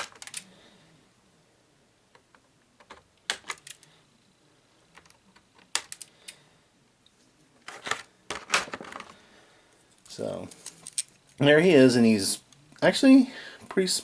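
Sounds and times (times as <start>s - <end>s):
plastic packaging handled: 7.6s - 9.2s.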